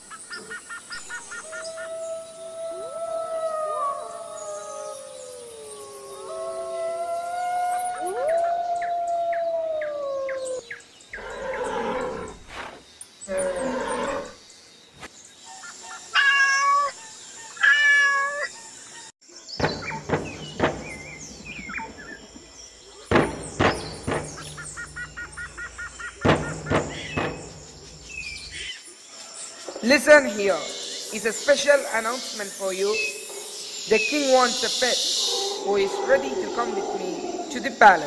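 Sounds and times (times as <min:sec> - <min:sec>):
long gliding howl: 0:01.6 - 0:10.6
animal calls: 0:19.6 - 0:28.8.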